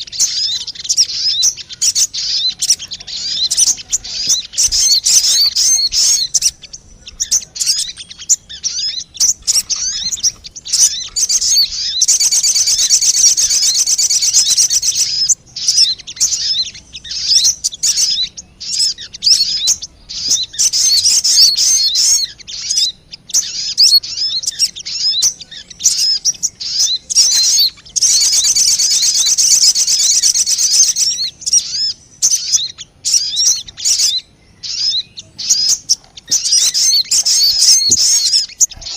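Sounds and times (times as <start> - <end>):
long dense bird trills: 0.0 - 38.9
quick high bird chirps: 0.0 - 38.9.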